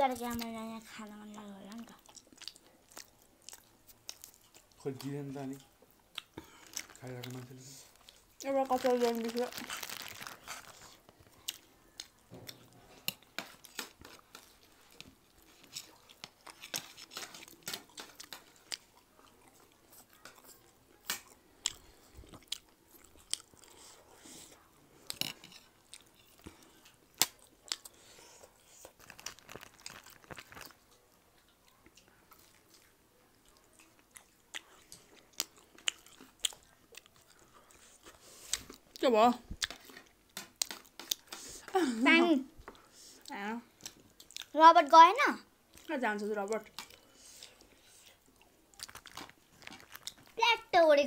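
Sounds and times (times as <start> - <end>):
chewing and biting food: 1.9 - 5.2, 9.7 - 41.4, 46.6 - 50.4.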